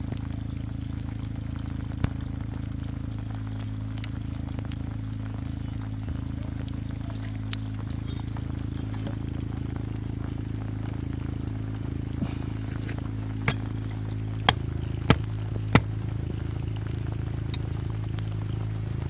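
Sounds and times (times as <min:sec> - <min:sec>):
low hum: 0:00.0 - 0:19.0
sharp clicks or knocks: 0:13.5 - 0:15.9.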